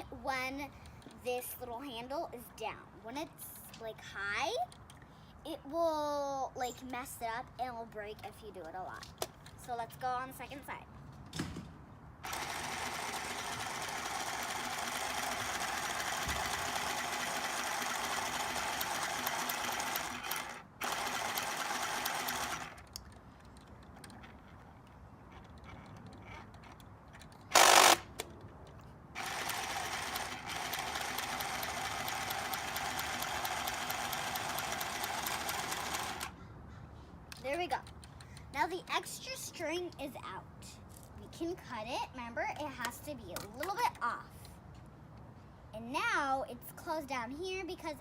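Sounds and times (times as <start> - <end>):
sewing machine stitching: 12.2 - 22.9, 27.5 - 28.0, 29.2 - 36.3
loud burst of noise: 27.5 - 28.1.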